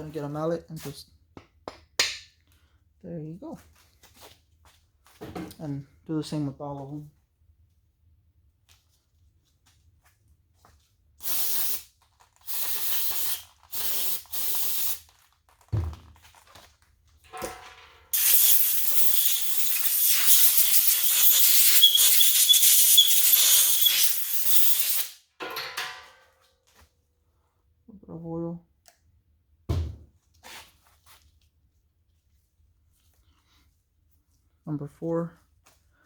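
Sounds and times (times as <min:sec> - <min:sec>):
pressurised spray hissing: 0:12.5 - 0:15.0, 0:18.2 - 0:25.1
thump: 0:15.8 - 0:16.1, 0:29.7 - 0:30.1.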